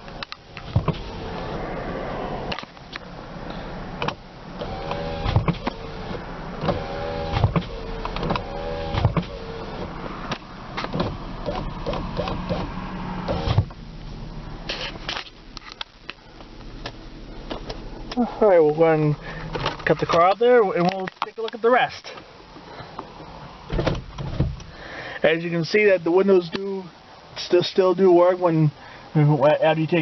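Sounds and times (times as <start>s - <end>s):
idling engine hum: 0.0s - 20.3s
power window motors whirring: 0.1s - 3.0s, 3.9s - 15.1s
window glass thump: 0.7s - 1.1s, 6.6s - 9.4s.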